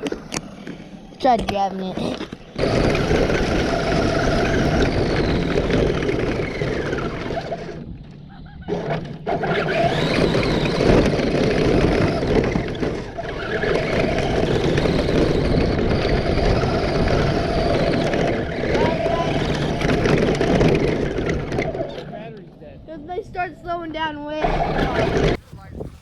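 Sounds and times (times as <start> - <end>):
rc car rumbling over ground: 0.0 - 26.0
electric motor whine: 1.9 - 22.3.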